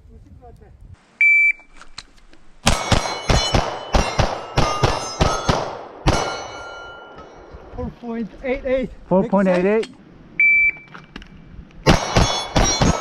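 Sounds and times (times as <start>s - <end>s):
pistol shots: 2.6s - 6.8s, 11.9s - 13.0s
steel targets ringing: 2.6s - 7.7s, 11.9s - 13.0s.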